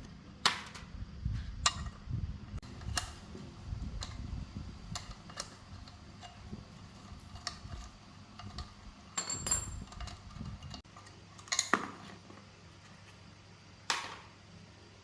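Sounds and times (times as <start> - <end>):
metal tools clinking and rattling: 5.0 - 10.8.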